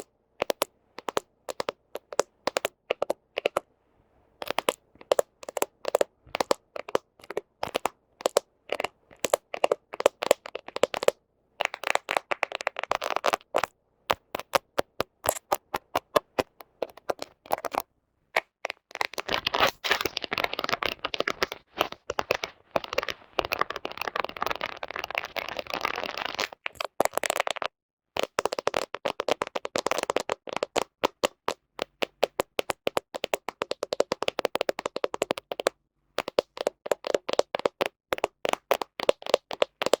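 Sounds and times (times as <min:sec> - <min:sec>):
fingernails tapping and scratching: 0:00.0 - 0:03.6, 0:04.4 - 0:17.8.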